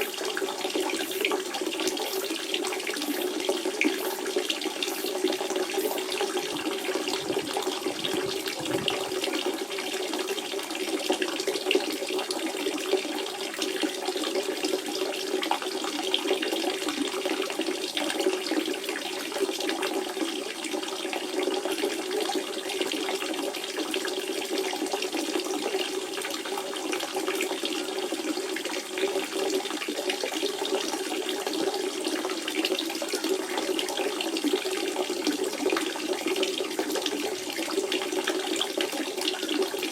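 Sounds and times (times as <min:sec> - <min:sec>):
spring water flowing: 0:00.0 - 0:11.2.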